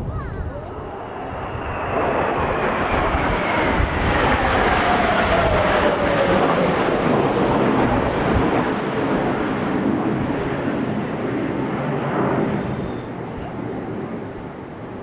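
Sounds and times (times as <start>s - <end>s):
wind rumbling on microphone: 0.0s - 11.7s
jet roar passing: 0.6s - 15.0s.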